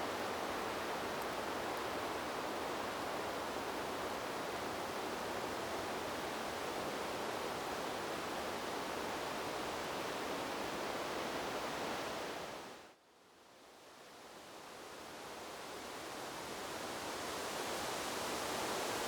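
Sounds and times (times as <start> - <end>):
wind blowing through trees: 0.0 - 19.0.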